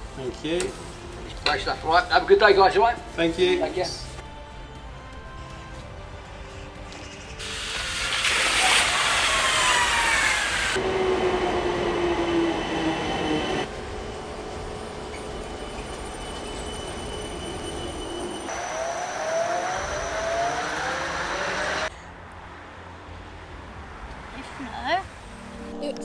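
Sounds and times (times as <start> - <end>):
wheel and track noise: 6.8 - 21.9
train motor whine: 7.4 - 21.9.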